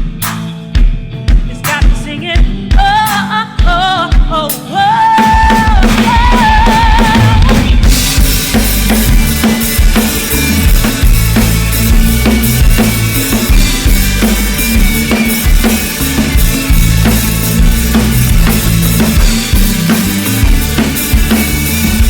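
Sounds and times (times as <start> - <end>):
drum kit beat: 0.0 - 22.0
live band playing: 0.0 - 22.0
bass line: 5.2 - 22.0.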